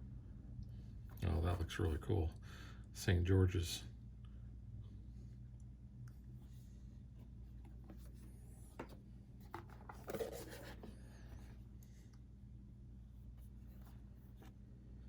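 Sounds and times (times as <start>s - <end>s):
low steady hum: 0.0s - 15.0s
cardboard sliding and rubbing: 7.7s - 11.1s.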